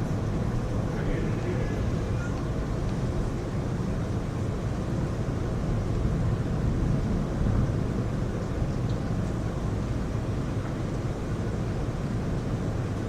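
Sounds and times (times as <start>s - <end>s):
heavy rain pouring: 0.0s - 4.0s.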